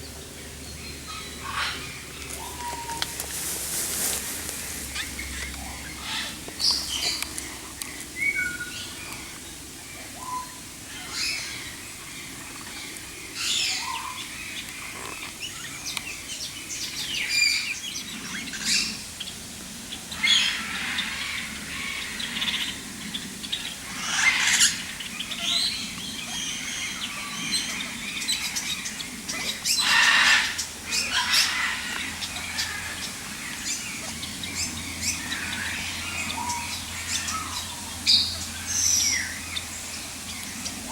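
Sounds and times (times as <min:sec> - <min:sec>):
harsh bird calls: 0:00.0 - 0:19.0, 0:20.2 - 0:40.9
birds chirping and whistling: 0:00.7 - 0:07.6, 0:08.2 - 0:09.3.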